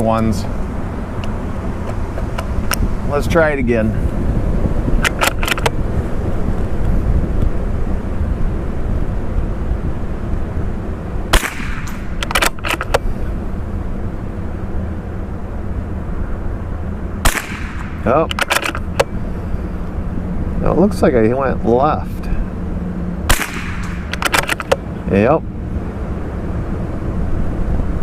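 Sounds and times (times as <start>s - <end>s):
wind buffeting microphone: 0.0s - 28.0s
rifle shot: 11.3s - 12.9s, 17.2s - 18.9s, 23.3s - 24.8s.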